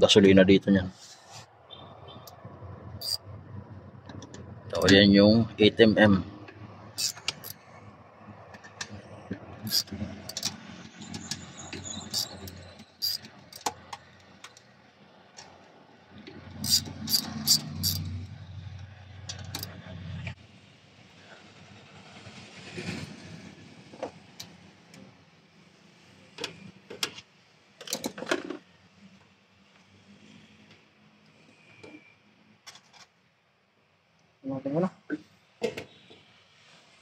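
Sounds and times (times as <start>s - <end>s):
metal tools clicking and clinking: 7.0s - 7.6s, 9.7s - 13.7s, 16.6s - 18.1s, 19.3s - 19.7s.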